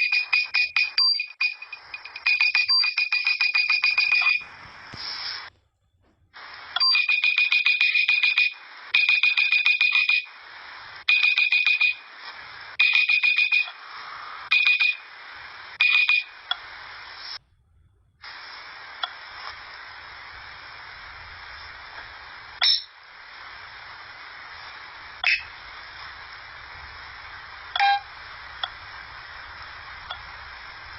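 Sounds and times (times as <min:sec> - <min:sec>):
rapid electronic alarm beeps: 0:00.0 - 0:04.5, 0:06.8 - 0:10.3, 0:11.1 - 0:12.1, 0:12.8 - 0:13.8, 0:14.5 - 0:15.1, 0:15.8 - 0:16.4, 0:27.8 - 0:28.1
steady hiss: 0:00.0 - 0:17.6, 0:18.2 - 0:30.9.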